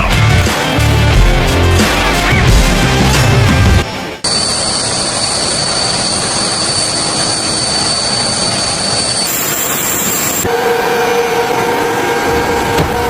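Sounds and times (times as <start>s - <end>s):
background music: 0.0s - 4.2s
aircraft turbine engines whining: 3.7s - 13.0s.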